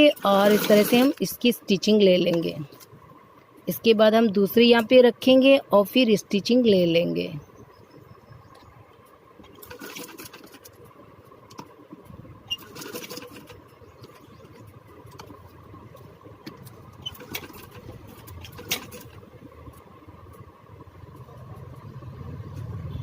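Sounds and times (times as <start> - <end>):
sewing machine motor humming: 0.0 - 1.2, 9.5 - 10.7, 12.5 - 14.6
sewing machine clattering: 0.0 - 1.4, 9.5 - 10.8, 12.5 - 15.4, 16.5 - 19.2.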